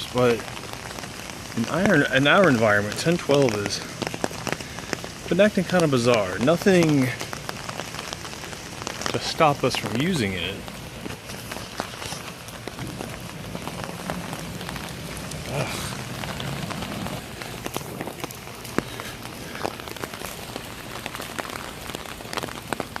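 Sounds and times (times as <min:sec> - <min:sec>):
drops ticking and splashing: 0:00.0 - 0:23.0
heavy rain falling: 0:00.0 - 0:23.0.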